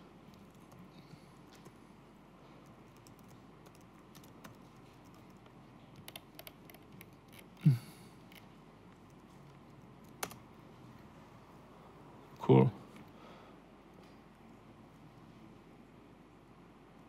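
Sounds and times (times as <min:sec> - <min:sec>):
typing on laptop keyboard: 0:00.3 - 0:01.8, 0:02.6 - 0:07.6, 0:10.0 - 0:10.4.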